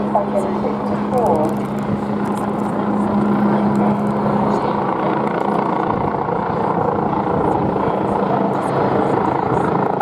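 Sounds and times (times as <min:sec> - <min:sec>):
helicopter rotor and turbine: 0:00.0 - 0:10.0.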